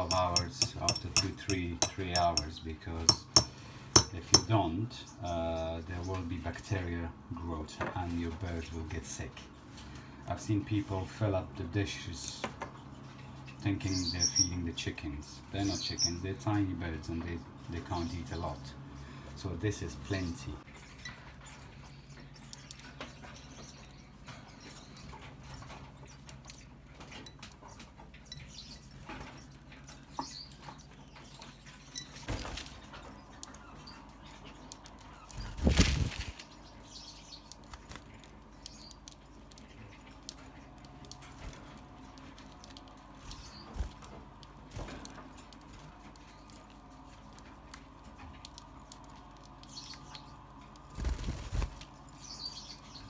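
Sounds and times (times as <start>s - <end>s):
finches chirping: 0.0s - 5.7s, 13.3s - 14.7s, 15.4s - 16.2s, 21.1s - 47.5s, 48.4s - 53.0s
knocks: 3.1s - 4.5s
wings fluttering: 32.1s - 33.1s, 35.2s - 36.8s, 37.5s - 38.4s, 42.6s - 45.2s, 50.8s - 52.3s.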